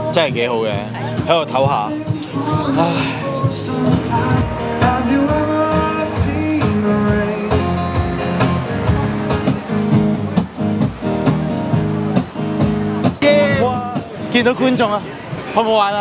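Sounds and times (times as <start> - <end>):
live band playing: 0.0 - 15.4
guitar: 0.0 - 16.0
person singing: 1.8 - 9.6.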